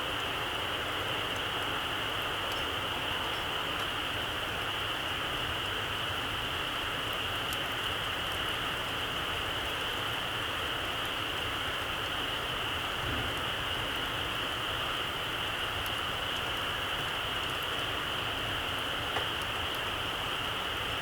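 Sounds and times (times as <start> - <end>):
campfire embers hissing: 0.0 - 21.0
faint fire crackles: 0.0 - 21.0.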